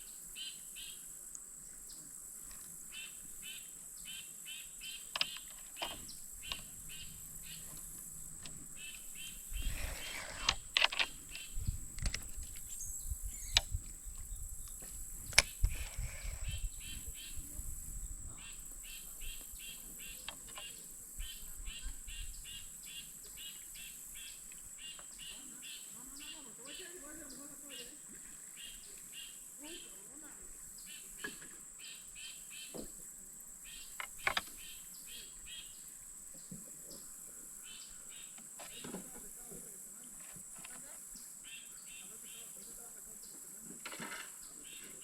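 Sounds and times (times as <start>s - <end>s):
insects buzzing: 0.0s - 45.0s
sharp clicks: 5.1s - 6.7s, 10.4s - 12.7s, 13.4s - 13.8s, 14.7s - 15.8s, 34.0s - 34.5s.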